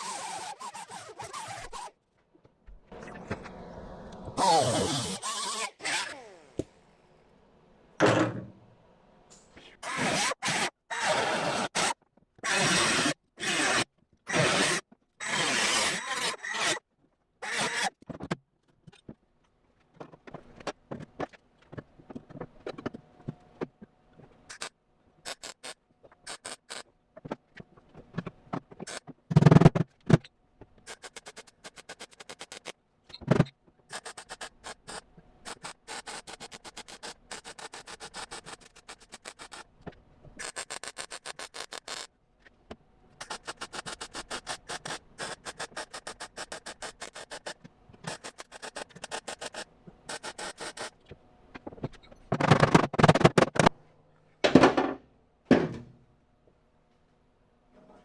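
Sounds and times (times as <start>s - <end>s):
welding bursts on sheet metal: 33.9s - 39.6s.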